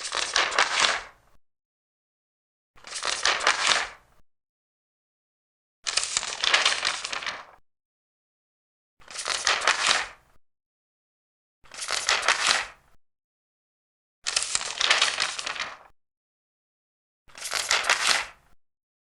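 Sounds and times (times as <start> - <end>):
paper pages turning: 0.0 - 1.1, 2.8 - 4.0, 5.9 - 7.6, 9.0 - 10.2, 11.7 - 12.8, 14.3 - 15.9, 17.3 - 18.4.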